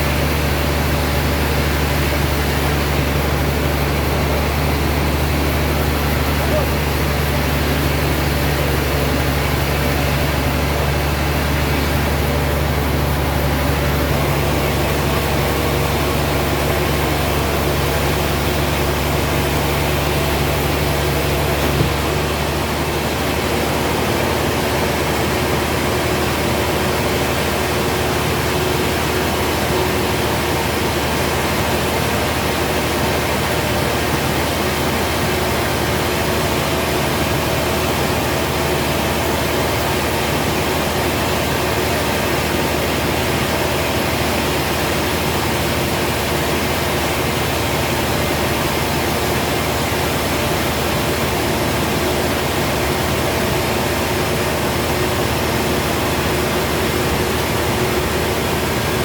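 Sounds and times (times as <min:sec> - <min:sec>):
sawmill machinery humming: 0:00.0 - 0:59.0
brief knock: 0:21.6 - 0:22.0.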